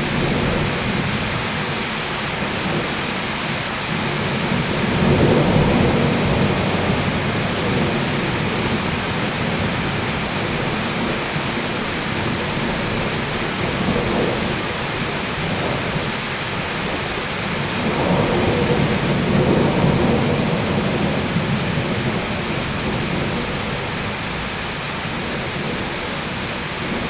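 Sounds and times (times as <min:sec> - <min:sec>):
heavy rain: 0:00.0 - 0:27.0
rolling thunder: 0:03.9 - 0:24.5.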